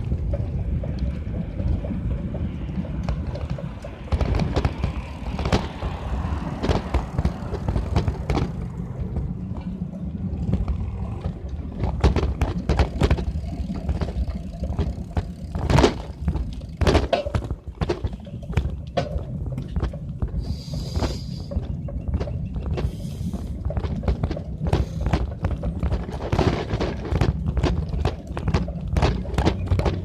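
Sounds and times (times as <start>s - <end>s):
bicycle clicks and knocks: 0.0s - 30.0s
wind rumble on microphone: 0.0s - 30.0s.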